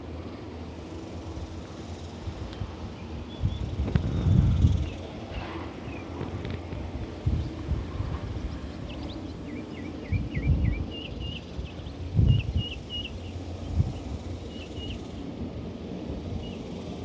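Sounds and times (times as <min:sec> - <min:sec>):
small songbirds chirping: 0:07.0 - 0:15.3.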